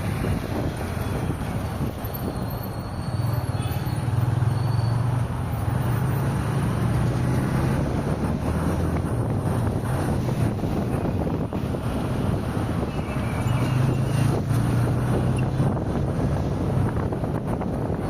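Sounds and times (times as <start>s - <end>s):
wind rush: 0.0s - 2.5s, 7.2s - 18.0s
car road and engine noise: 0.0s - 18.0s.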